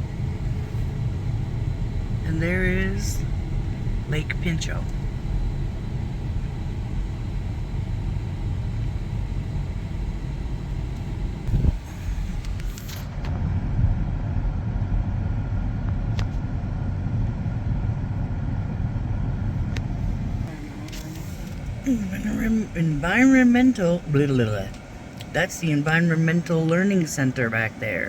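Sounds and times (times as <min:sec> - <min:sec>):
car road and engine rumble: 0:00.0 - 0:28.0.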